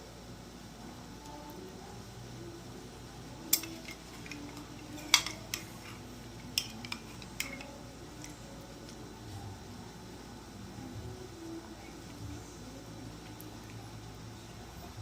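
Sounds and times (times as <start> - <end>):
cutlery clinking on plate: 3.5 - 5.7.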